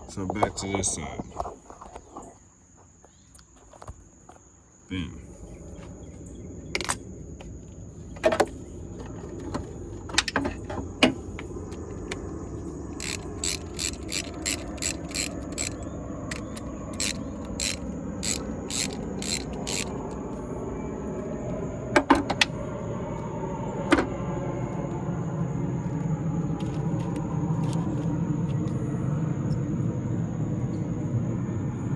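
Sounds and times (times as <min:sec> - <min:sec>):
socket ratchet clicking: 0:06.8 - 0:07.0, 0:10.1 - 0:20.4, 0:26.6 - 0:28.1
metal tools knocking: 0:13.0 - 0:20.2.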